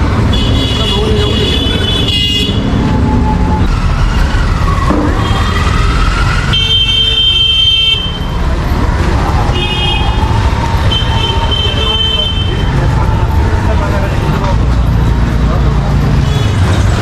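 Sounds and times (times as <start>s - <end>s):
vehicle engines rumbling: 0.0s - 17.0s
vehicle horns honking: 0.2s - 2.8s, 6.5s - 8.4s, 9.5s - 12.8s.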